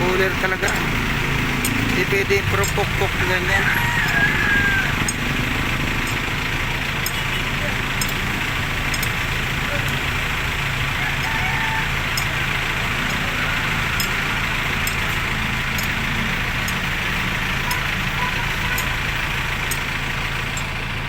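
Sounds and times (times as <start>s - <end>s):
engine idling: 0.0s - 21.0s
faint sharp ticks: 7.0s - 7.3s, 8.0s - 9.2s, 14.8s - 17.0s, 18.6s - 19.9s.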